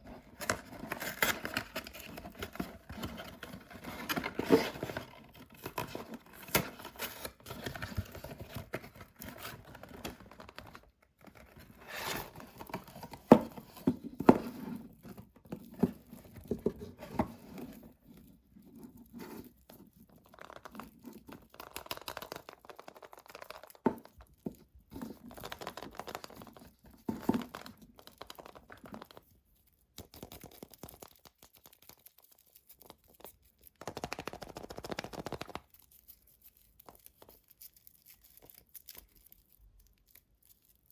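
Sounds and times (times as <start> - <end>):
wrapper crinkling and tearing: 17.7 - 24.5, 30.1 - 40.9.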